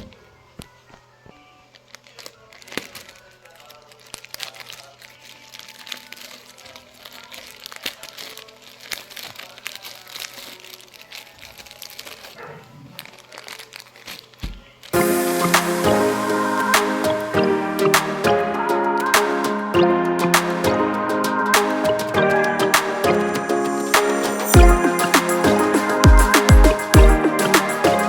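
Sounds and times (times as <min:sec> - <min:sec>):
plastic packaging crinkling: 0:00.6 - 0:15.0.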